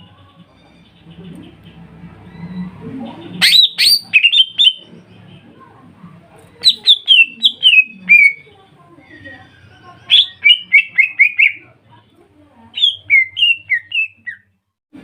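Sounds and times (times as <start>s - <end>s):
birds singing whistled notes: 6.6s - 11.6s, 12.8s - 14.5s.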